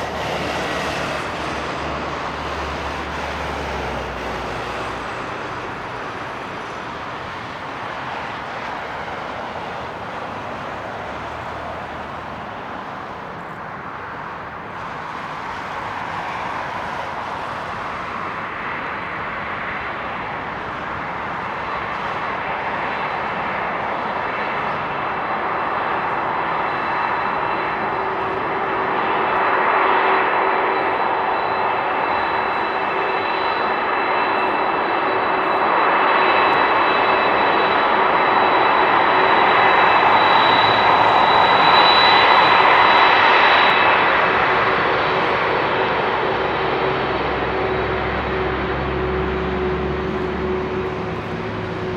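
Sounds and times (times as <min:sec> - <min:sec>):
jet engines roaring: 0:00.0 - 0:51.9
high whine: 0:24.8 - 0:51.9.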